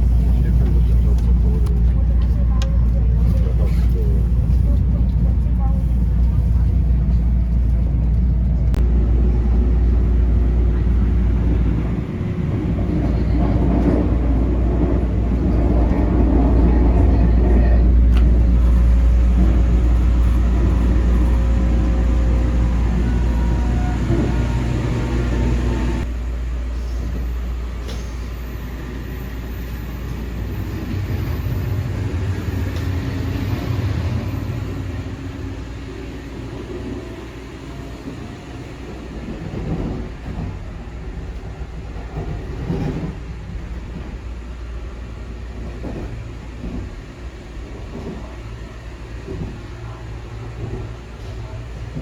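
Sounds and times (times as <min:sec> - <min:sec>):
electric train rumbling: 0:00.0 - 0:52.0.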